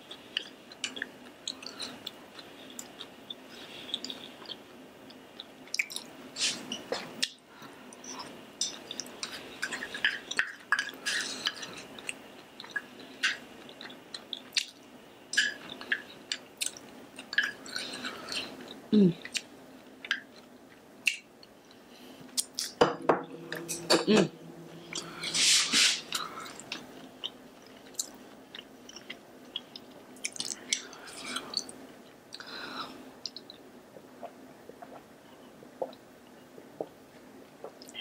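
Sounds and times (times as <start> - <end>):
chewing food with mouth clicks: 0.1 - 22.8, 26.1 - 32.5.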